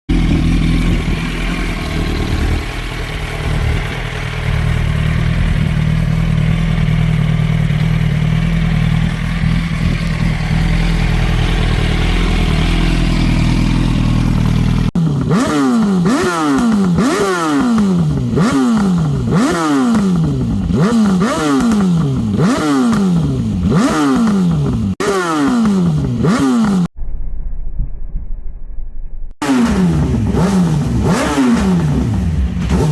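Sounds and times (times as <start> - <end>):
motorcycle engine idling: 0.1 - 25.0
motorcycle engine revving: 0.1 - 27.0, 29.4 - 32.9.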